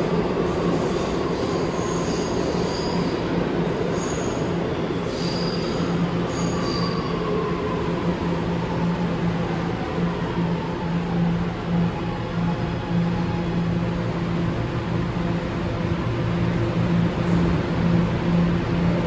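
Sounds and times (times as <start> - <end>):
wheels squealing on rails: 0.0 - 8.1
subway train rumbling: 0.0 - 19.0.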